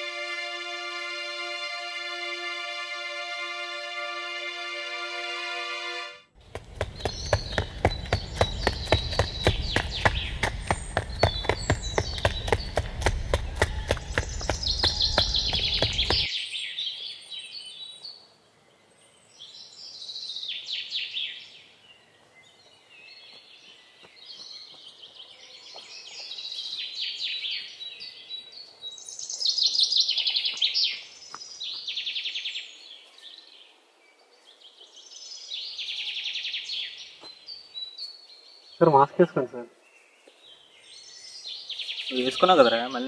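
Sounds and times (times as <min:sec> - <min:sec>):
footsteps in sandals: 0:06.4 - 0:16.3, 0:22.2 - 0:26.7
songbirds trilling: 0:06.4 - 0:18.2, 0:18.8 - 0:43.0.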